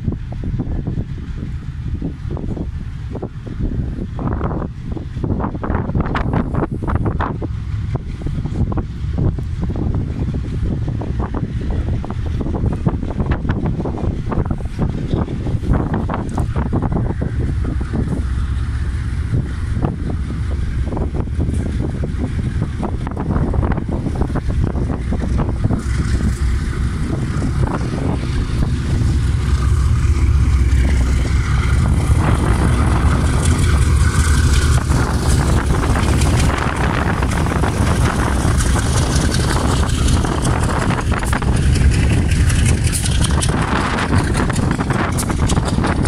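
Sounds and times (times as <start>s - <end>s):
diesel locomotive engine rumbling: 0.0s - 46.0s
freight wagons rattling and clanking: 11.0s - 46.0s.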